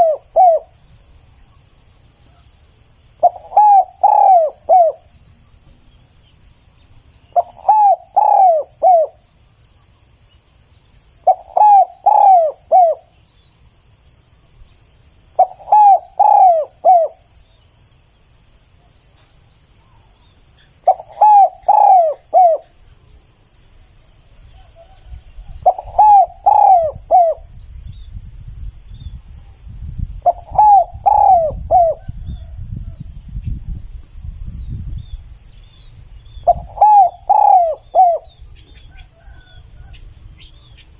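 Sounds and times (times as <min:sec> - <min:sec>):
dove cooing: 0:00.0 - 0:00.8, 0:03.2 - 0:05.0, 0:07.3 - 0:09.2, 0:11.2 - 0:13.2, 0:15.4 - 0:17.3, 0:20.8 - 0:22.7, 0:24.5 - 0:27.5, 0:30.2 - 0:33.0, 0:36.4 - 0:40.0
insects chirring: 0:00.0 - 0:40.9.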